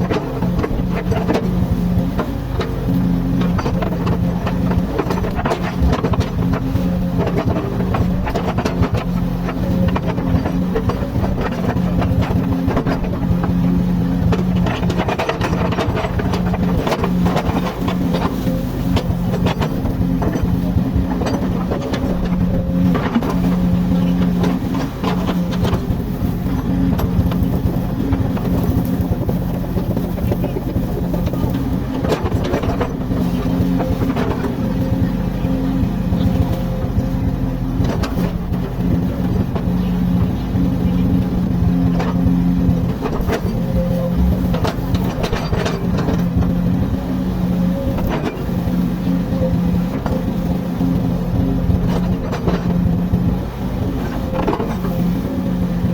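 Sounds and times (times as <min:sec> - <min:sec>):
excavator diesel engine running: 0:00.0 - 0:55.9
knocks and clanks: 0:36.1 - 0:48.4.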